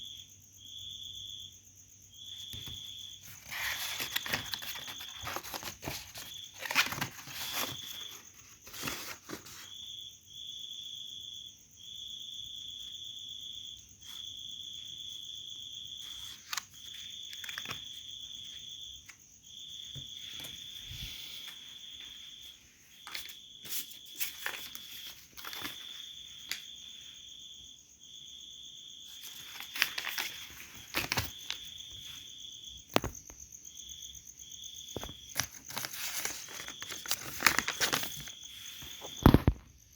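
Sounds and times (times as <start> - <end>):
insects trilling: 0.0 - 39.9
handling clicks and rustles: 29.2 - 31.6.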